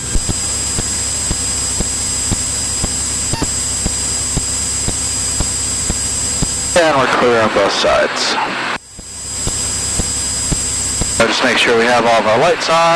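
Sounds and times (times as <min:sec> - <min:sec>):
light ticking: 0:00.0 - 0:06.8
faint high whine: 0:00.0 - 0:12.9.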